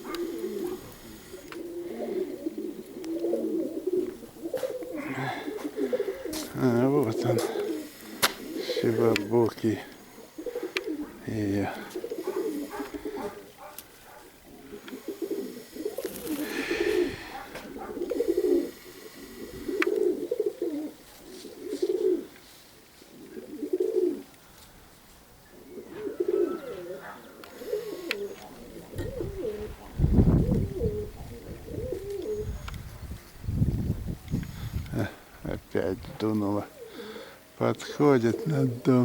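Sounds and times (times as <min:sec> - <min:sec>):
pigeons cooing: 0:00.0 - 0:39.0
wind buffeting microphone: 0:28.6 - 0:36.3.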